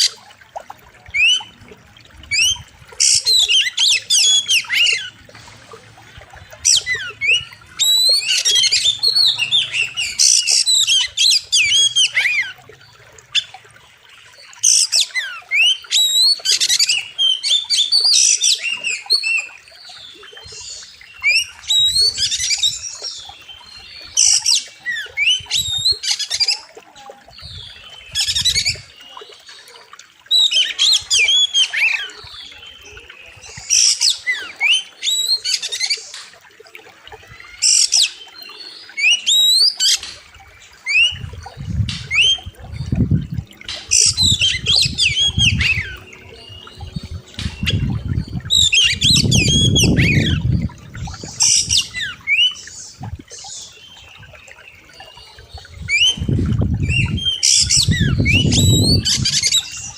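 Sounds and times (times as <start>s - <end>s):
bird singing whistles: 47.6s - 50.5s, 55.8s - 59.7s.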